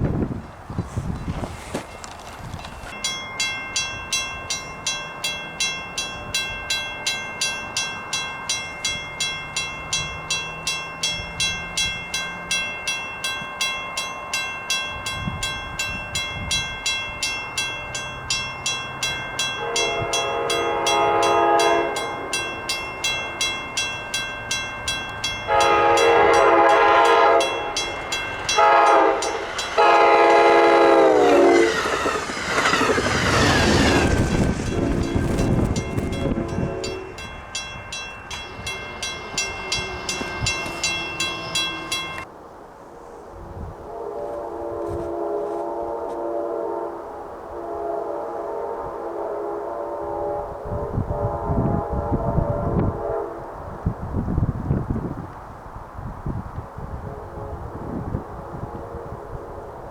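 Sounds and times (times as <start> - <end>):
crossing bell ringing: 1.8 - 42.3
train air horn: 19.6 - 22.4, 25.5 - 27.9, 28.5 - 35.6, 36.2 - 37.2, 42.8 - 53.9, 56.9 - 59.9.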